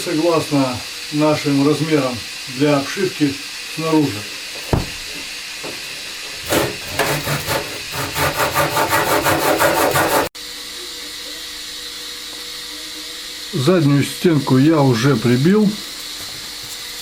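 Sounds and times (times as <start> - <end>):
saw cutting hardboard: 2.8 - 10.4.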